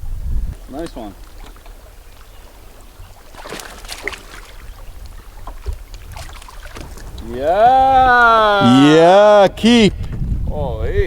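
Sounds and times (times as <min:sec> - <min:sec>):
water splashing: 0:00.0 - 0:09.2
wind rumbling on microphone: 0:00.0 - 0:11.0
light knocks in a canoe: 0:00.5 - 0:07.4.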